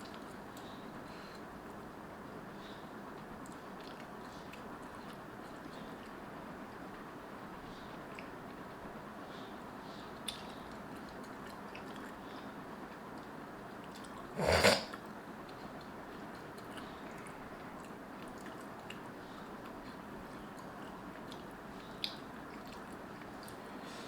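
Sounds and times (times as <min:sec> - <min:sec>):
person chewing noodles: 0:03.4 - 0:06.2, 0:10.2 - 0:12.3, 0:12.9 - 0:23.7
room hiss: 0:14.3 - 0:15.0.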